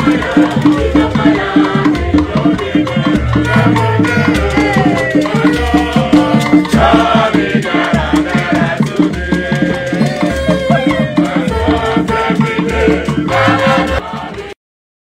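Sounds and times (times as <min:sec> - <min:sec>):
rattles and hand percussion: 0:00.0 - 0:14.6
held melody notes: 0:03.2 - 0:07.2, 0:10.0 - 0:14.0.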